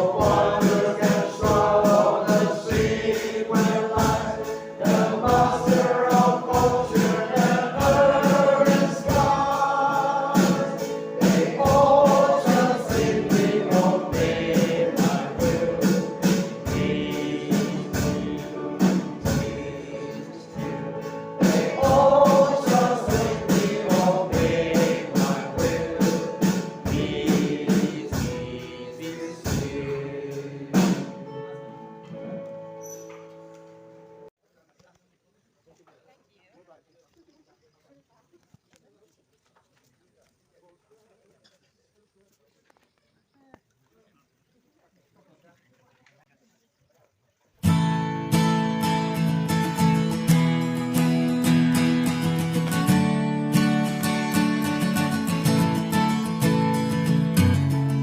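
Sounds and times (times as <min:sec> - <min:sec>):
steady beat: 0:00.0 - 0:31.1
choir singing gospel: 0:00.0 - 0:32.0, 0:47.7 - 0:58.0.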